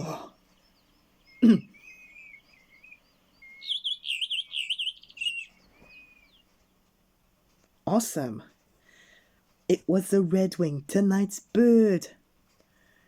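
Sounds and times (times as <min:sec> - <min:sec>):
redwing whistles and twittering: 0:00.0 - 0:06.6.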